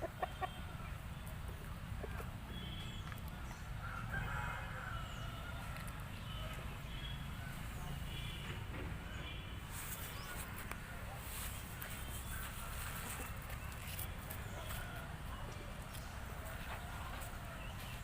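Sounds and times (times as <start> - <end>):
chickens clucking: 0.0 - 2.6
rooster crowing: 3.8 - 6.0.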